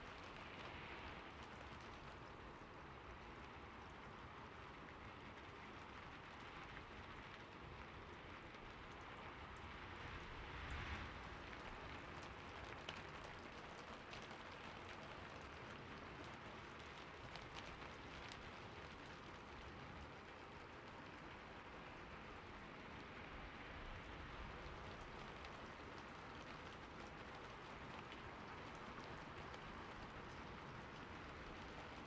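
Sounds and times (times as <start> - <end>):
rain on a roof: 0.0 - 32.0
raindrops ticking on roof: 0.0 - 32.0.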